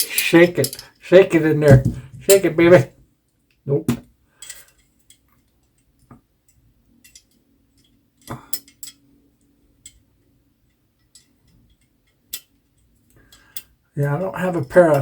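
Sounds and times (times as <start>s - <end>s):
small metal parts clicking: 0.0s - 1.0s, 4.4s - 9.1s, 10.7s - 13.8s.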